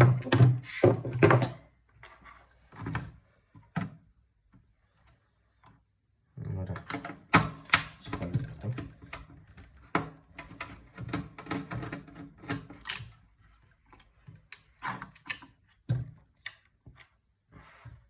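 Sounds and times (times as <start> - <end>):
computer parts clicking and knocking: 6.8 - 13.2.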